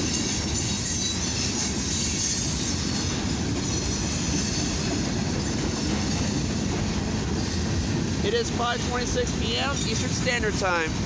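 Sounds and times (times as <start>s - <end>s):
train wheels rumbling on rail: 0.0s - 11.0s
faint wheel squeal: 0.1s - 3.2s.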